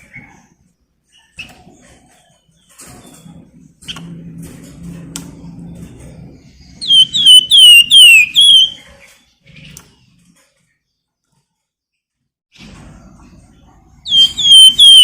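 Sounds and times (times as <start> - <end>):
songbird whistled notes: 6.8 - 8.8, 14.1 - 15.0.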